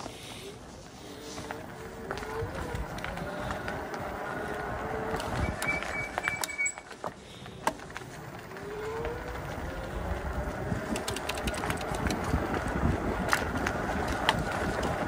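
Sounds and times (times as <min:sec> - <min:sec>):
wind noise: 0:00.7 - 0:06.6, 0:08.6 - 0:15.0
sharp clicks: 0:10.9 - 0:12.4.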